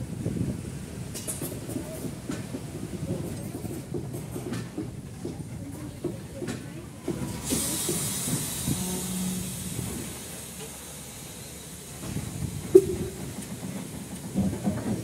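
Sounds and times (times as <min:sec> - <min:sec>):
train rolling slowly: 0:00.0 - 0:15.0
locomotive hiss: 0:05.5 - 0:15.0.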